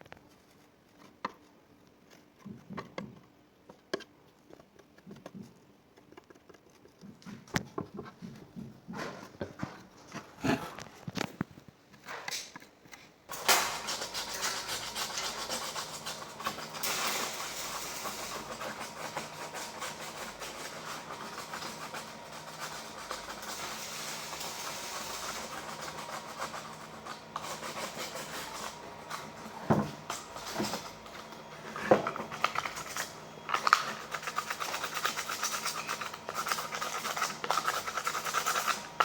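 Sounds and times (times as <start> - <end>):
faint motor hum: 13.3 - 39.0.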